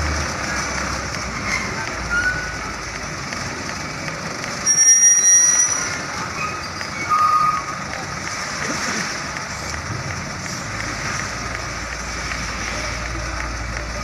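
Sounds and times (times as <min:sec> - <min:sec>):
engine and traffic noise: 0:00.0 - 0:14.0
truck brakes squealing: 0:01.4 - 0:02.6, 0:04.6 - 0:07.8.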